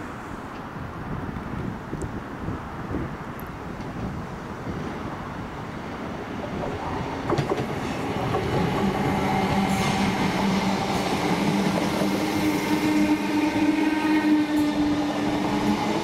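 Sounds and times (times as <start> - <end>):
train approaching: 3.8 - 16.0
train wheel clicks: 7.3 - 8.9.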